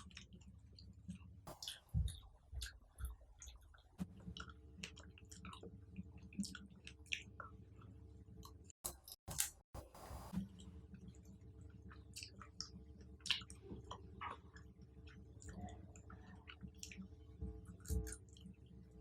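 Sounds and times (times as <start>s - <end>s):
chewing fruit with wet mouth clicks: 1.1s - 8.6s, 11.9s - 18.6s.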